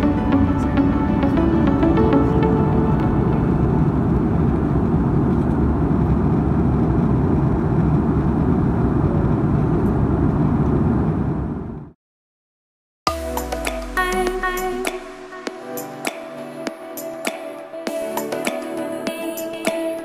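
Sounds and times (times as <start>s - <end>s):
jet engines roaring in cabin: 0.0s - 12.0s.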